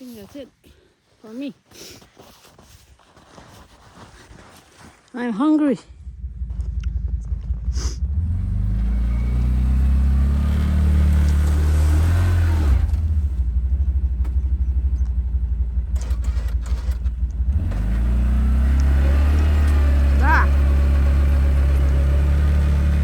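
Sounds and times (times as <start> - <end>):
atv engine revving: 6.0 - 23.0.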